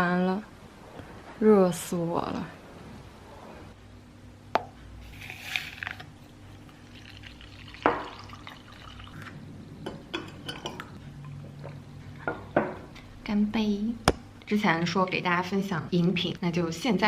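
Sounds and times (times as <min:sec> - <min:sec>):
glass clinking: 0:07.7 - 0:09.0, 0:09.8 - 0:11.0.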